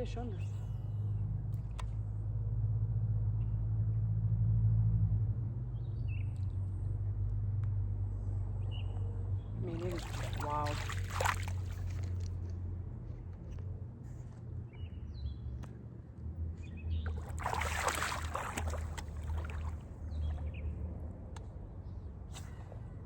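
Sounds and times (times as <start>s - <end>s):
water splashing: 9.7s - 12.3s, 17.0s - 20.5s
steady low rumble: 16.0s - 23.0s.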